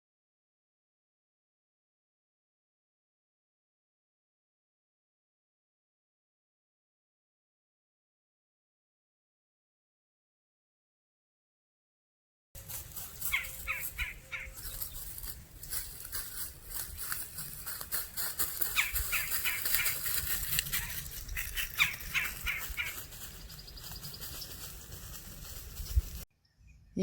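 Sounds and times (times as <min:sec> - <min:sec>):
birds harsh repeated calls: 0:12.6 - 0:26.2.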